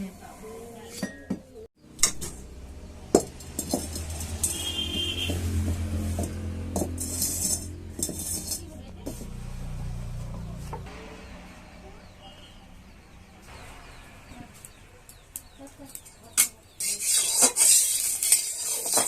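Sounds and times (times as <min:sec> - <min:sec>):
metal utensils clinking on pots: 0:00.9 - 0:02.5, 0:03.1 - 0:09.3, 0:15.9 - 0:19.0
utensil scraping: 0:03.4 - 0:09.4, 0:15.9 - 0:19.0.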